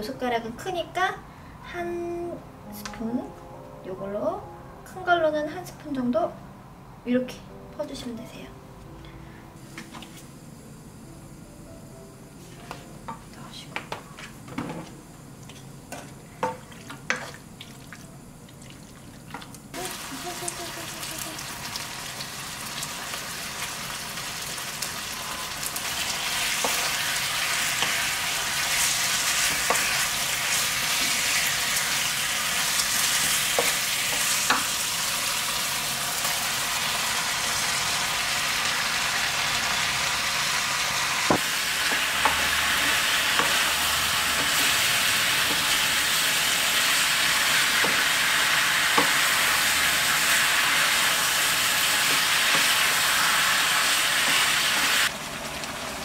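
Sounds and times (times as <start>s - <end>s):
meat sizzling in a frying pan: 19.7s - 56.0s.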